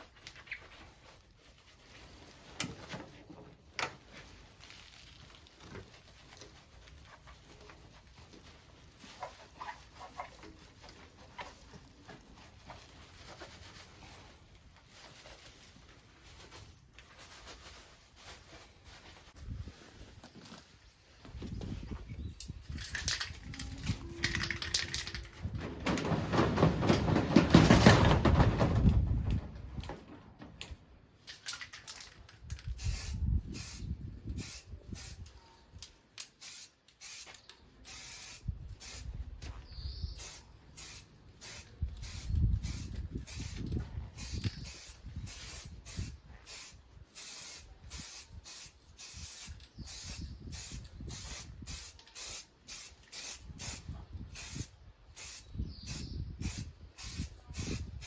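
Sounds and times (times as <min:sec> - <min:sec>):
spray paint spurts: 0:31.2 - 0:39.2, 0:40.2 - 0:58.0.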